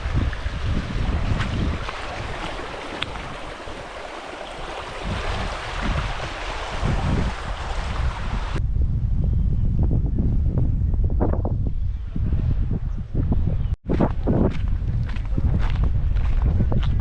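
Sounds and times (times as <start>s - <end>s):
river water rushing: 0.0s - 8.6s
wind buffeting microphone: 0.0s - 17.0s.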